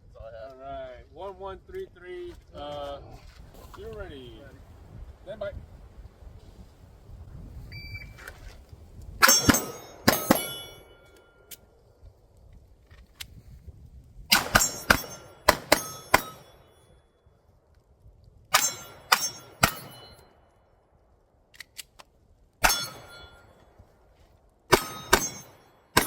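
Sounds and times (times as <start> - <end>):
pistol shots: 9.2 - 10.9, 14.3 - 16.6, 18.5 - 20.2, 22.6 - 23.5, 24.7 - 26.0
ring of struck steel targets: 9.2 - 11.5, 14.3 - 17.0, 18.5 - 20.4, 22.6 - 23.8, 24.7 - 26.0.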